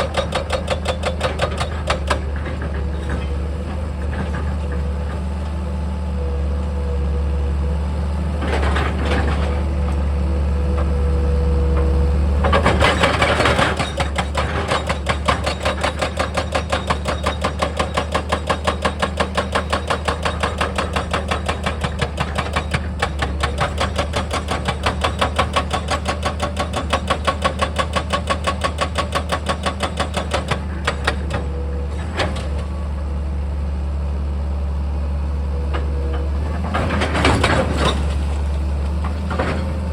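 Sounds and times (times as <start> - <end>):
diesel engine running: 1.2 - 15.9, 30.3 - 39.9.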